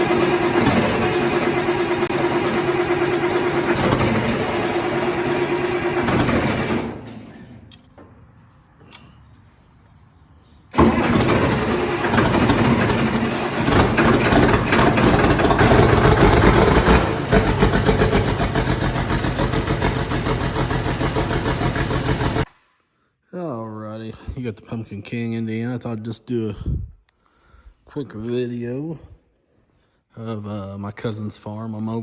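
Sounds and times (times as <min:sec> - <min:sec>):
tractor diesel engine running: 0:00.0 - 0:10.1, 0:10.7 - 0:22.5.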